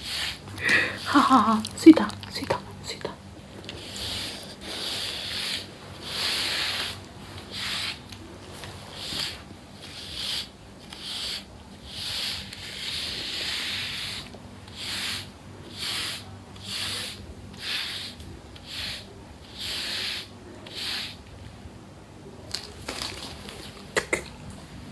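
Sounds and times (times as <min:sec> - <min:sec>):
rubbing or scrubbing strokes: 0:03.7 - 0:21.2.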